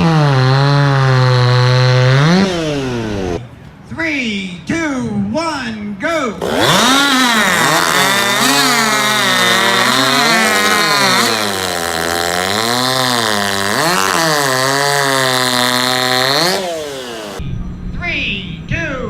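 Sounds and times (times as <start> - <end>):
chainsaws cutting through log: 0.0 - 3.4, 6.4 - 17.4.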